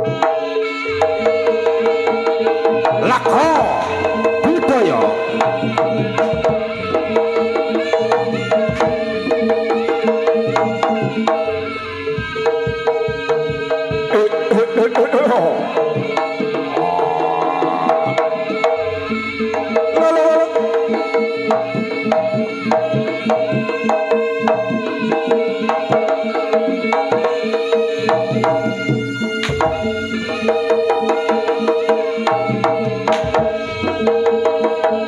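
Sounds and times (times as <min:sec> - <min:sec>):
hand drums playing quick rhythm: 0:01.0 - 0:35.0
steady held tones: 0:15.6 - 0:19.4.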